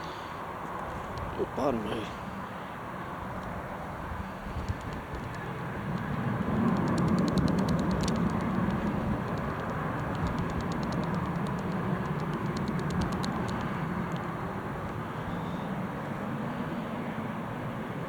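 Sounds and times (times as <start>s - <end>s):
wind crackling: 3.3s - 15.9s
wind gusting over microphone: 3.5s - 16.0s
jet engines running: 3.8s - 18.0s.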